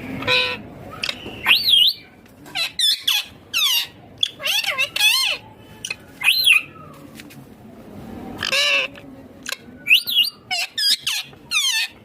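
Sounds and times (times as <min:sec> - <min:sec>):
parakeet calling shrilly: 0:00.2 - 0:06.8, 0:09.8 - 0:12.0.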